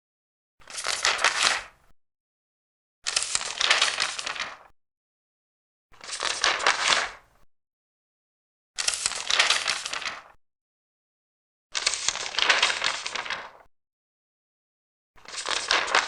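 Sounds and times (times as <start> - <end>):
paper pages turning: 0.6 - 1.7, 3.1 - 4.7, 6.0 - 7.2, 8.8 - 10.4, 11.8 - 13.6, 15.2 - 16.0.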